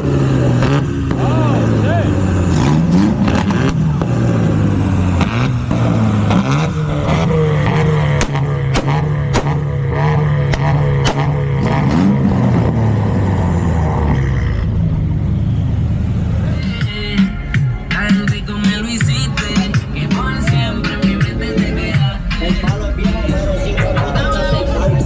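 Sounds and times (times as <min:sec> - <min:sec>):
car engine revving: 0:00.0 - 0:25.0
sharp exhaust pops: 0:05.2 - 0:12.8.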